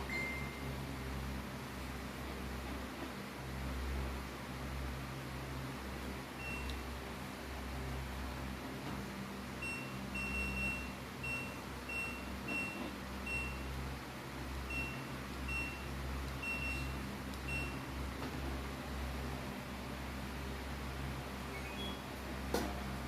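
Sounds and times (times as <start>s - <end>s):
washing machine beeping: 0.0s - 0.8s, 6.4s - 7.0s, 9.5s - 13.8s, 14.6s - 18.0s, 21.4s - 23.0s.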